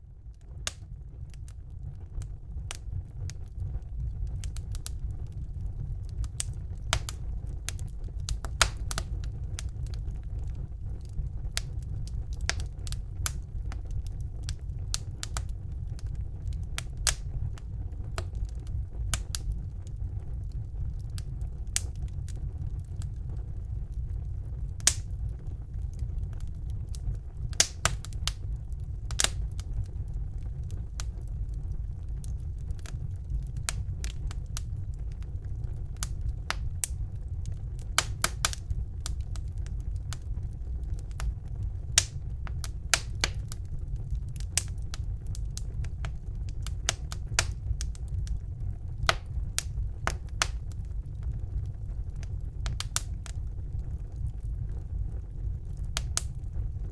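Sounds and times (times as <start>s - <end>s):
fire flames rumbling: 0.0s - 56.9s
logs crackling and popping: 0.1s - 56.9s.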